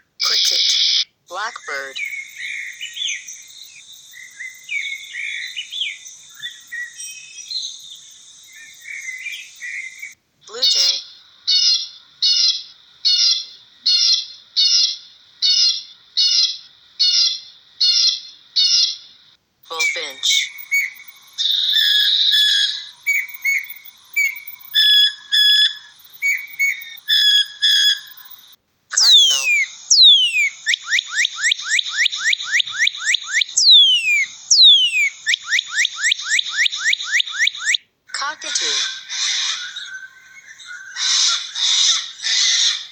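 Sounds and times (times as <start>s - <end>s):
blackbird harsh call: 0.3s - 7.8s, 19.7s - 37.8s, 38.4s - 42.9s
bird singing whistles: 1.7s - 10.2s, 19.7s - 37.8s, 38.8s - 41.5s.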